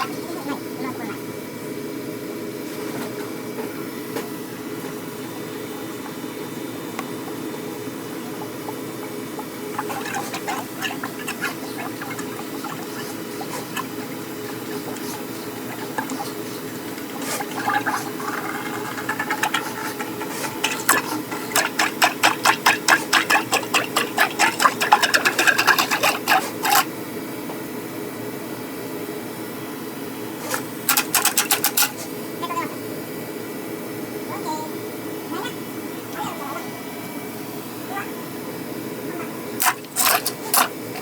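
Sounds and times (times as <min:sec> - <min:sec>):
drain cleaner humming: 0:04.7 - 0:27.3, 0:30.2 - 0:32.3, 0:39.5 - 0:41.0.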